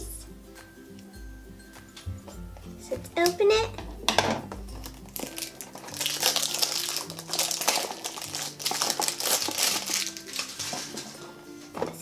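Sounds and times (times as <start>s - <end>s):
plastic packaging crinkling: 4.6s - 11.4s.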